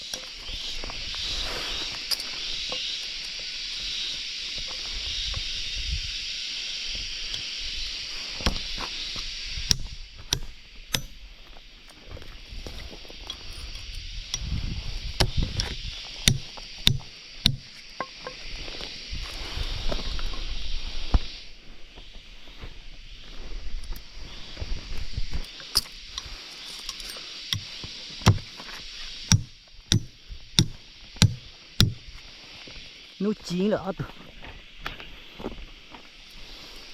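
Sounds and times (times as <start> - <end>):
high-pitched insect chorus: 0.0 - 36.9
steady high hiss: 0.0 - 36.9
blade chopping wood: 16.2 - 18.2, 27.6 - 28.6, 29.3 - 32.0
sharp knocks: 29.3 - 32.0.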